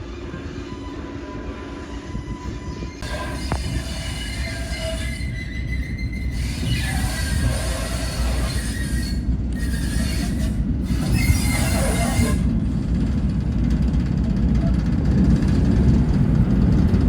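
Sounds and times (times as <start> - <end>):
wheels squealing on rails: 0.0 - 13.0
train rumbling along track: 0.0 - 17.0.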